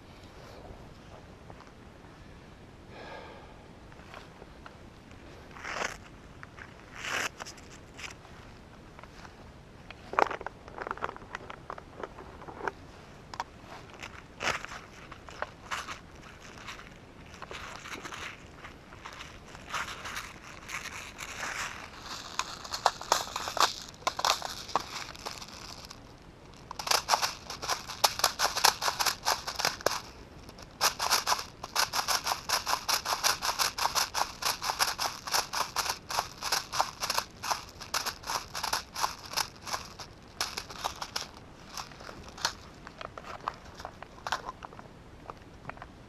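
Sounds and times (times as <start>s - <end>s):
footsteps crunching on dry ground: 12.0s - 44.4s
rustling and snapping brush: 12.0s - 44.5s.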